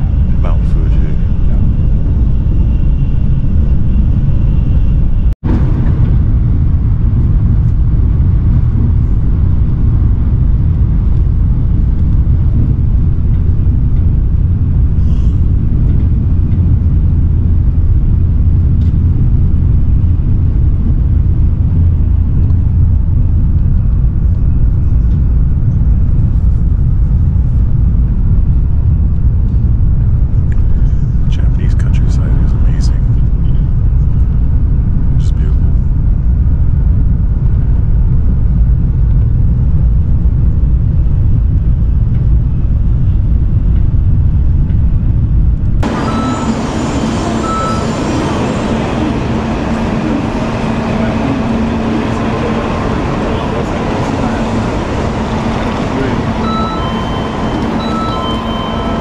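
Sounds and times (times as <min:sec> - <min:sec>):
train rumble inside passenger car: 0:00.0 - 0:59.0.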